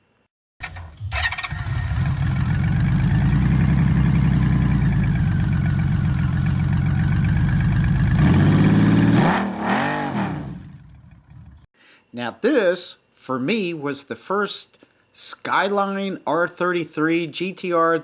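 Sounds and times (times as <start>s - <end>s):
vehicle engine idling and revving: 0.6s - 11.7s.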